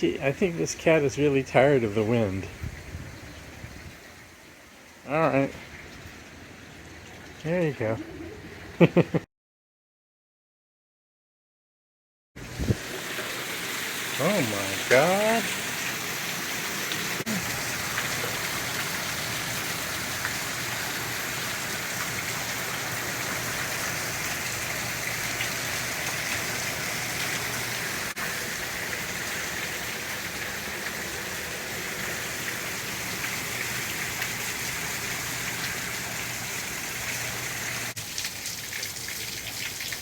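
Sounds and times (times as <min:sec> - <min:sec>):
strong wind: 0:02.5 - 0:04.1, 0:12.5 - 0:12.8
heavy rain pouring: 0:12.4 - 0:40.0.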